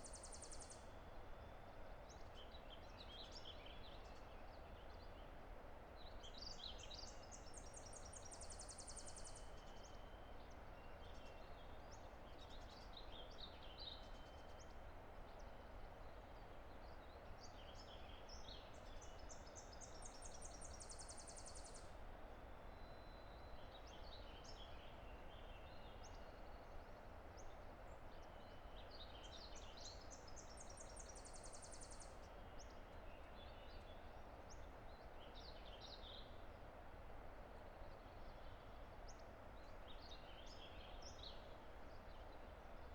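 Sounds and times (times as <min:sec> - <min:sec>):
songbird singing with trill: 0:22.7 - 0:24.9.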